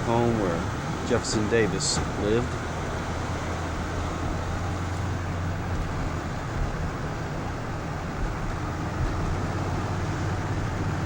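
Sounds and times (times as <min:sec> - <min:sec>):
car engine hum: 0:00.0 - 0:11.0
tyre and wind noise: 0:02.5 - 0:11.0.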